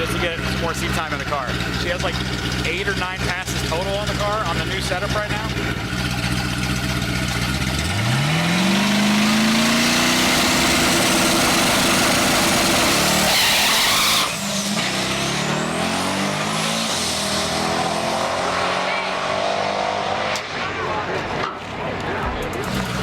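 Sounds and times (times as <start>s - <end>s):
car engine revving hard: 0.0s - 21.0s.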